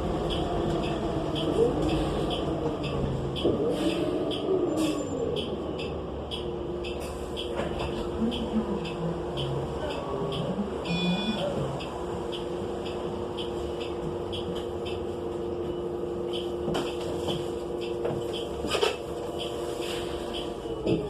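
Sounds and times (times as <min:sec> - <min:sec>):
bus engine idling: 0:00.0 - 0:21.0
light ticking: 0:04.2 - 0:17.0.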